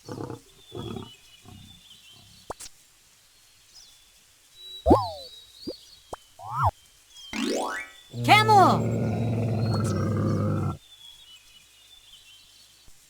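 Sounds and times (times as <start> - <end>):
lion grunting: 0.0 - 2.5, 8.2 - 10.8
faint bird chirps: 4.6 - 8.2.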